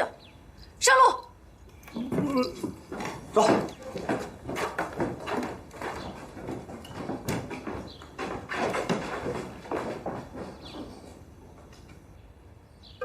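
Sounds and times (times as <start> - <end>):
horses hooves clip-clopping: 1.8 - 12.2.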